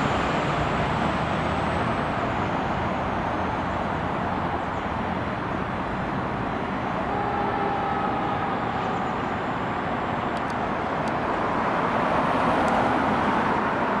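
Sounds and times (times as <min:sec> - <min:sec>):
road traffic passing: 0:00.0 - 0:14.0
faint steady tone: 0:02.1 - 0:11.5.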